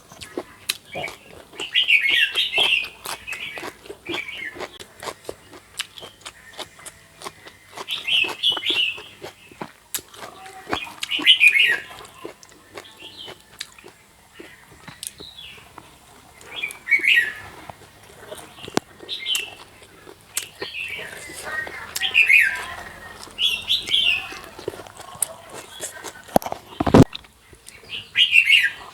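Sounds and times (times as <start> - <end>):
birds chirping: 0.0 - 28.9
sharp clicks and crunches: 14.8 - 27.8.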